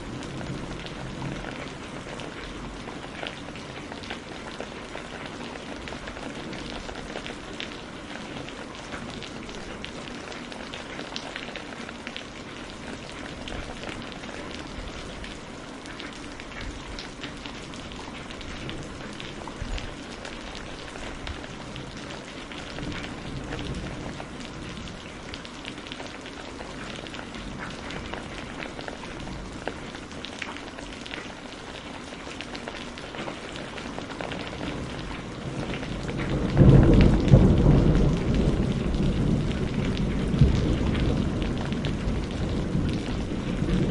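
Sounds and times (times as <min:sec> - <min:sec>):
steady rain falling: 0:00.0 - 0:43.9
low thunder rumble: 0:17.8 - 0:25.3, 0:34.6 - 0:43.9.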